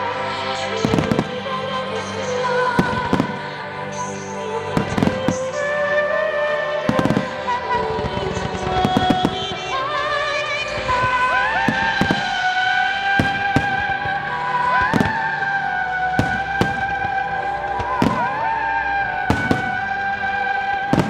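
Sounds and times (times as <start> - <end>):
music with long held notes: 0.0 - 21.0.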